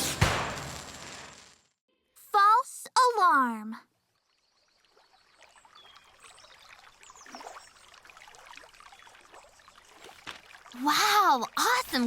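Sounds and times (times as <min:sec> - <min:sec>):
water trickling and splashing: 0:03.9 - 0:12.0.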